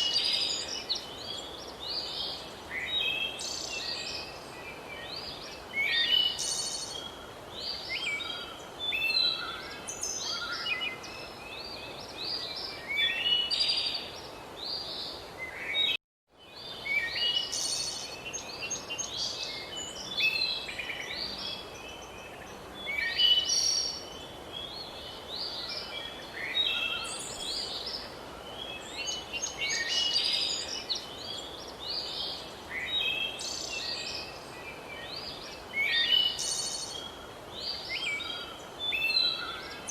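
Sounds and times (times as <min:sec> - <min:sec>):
background hiss: 0:00.0 - 0:39.9
birds singing: 0:00.0 - 0:39.9.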